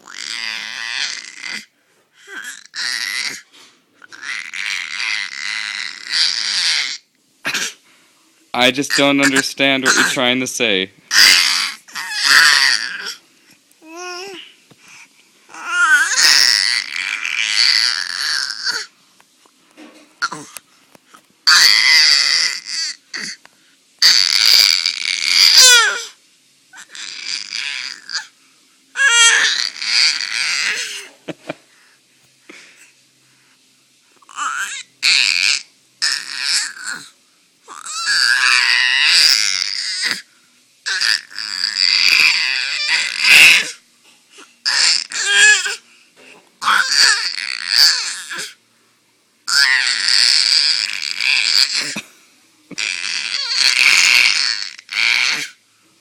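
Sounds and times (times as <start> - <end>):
baby screeching: 0.0 - 1.7, 2.3 - 3.4, 4.0 - 7.7, 8.7 - 10.2, 11.1 - 13.2, 13.8 - 14.4, 15.5 - 18.9, 21.4 - 23.4, 24.0 - 26.2, 26.8 - 28.3, 29.0 - 31.1, 34.3 - 37.1, 37.7 - 43.8, 44.6 - 45.8, 46.6 - 48.6, 49.5 - 52.0, 52.7 - 55.6.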